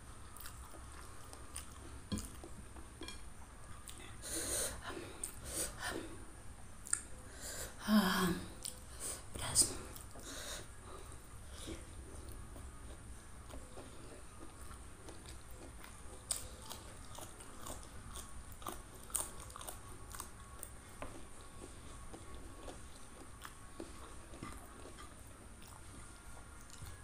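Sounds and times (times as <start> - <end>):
chewing and crunching food: 0.2 - 4.2, 9.7 - 27.0.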